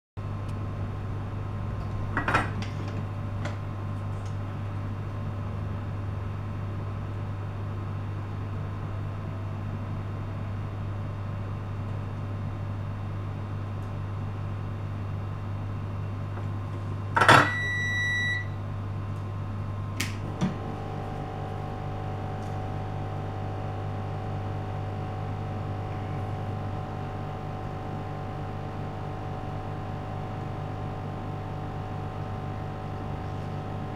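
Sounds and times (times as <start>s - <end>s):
electrical hum: 14.5s - 33.9s
single beep: 17.3s - 18.6s.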